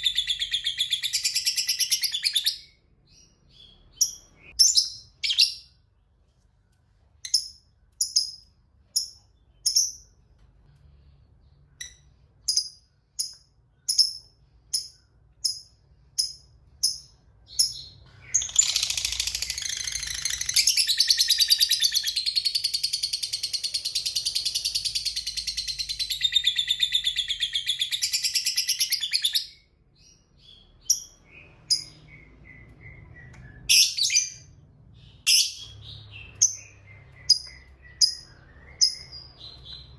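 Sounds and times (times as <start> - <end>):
lovebird chirping and chattering: 0.0 - 5.8, 7.2 - 10.2, 11.7 - 39.9.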